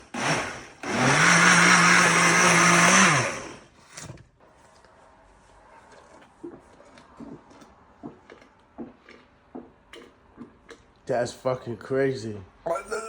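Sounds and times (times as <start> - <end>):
blender motor humming: 0.0 - 3.7.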